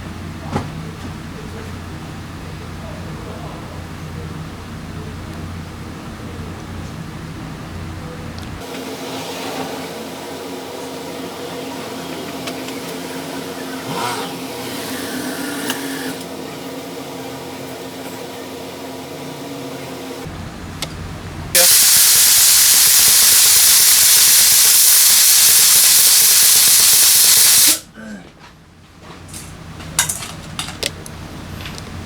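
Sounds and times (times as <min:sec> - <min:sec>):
pressurised jet hissing: 0:21.6 - 0:27.8.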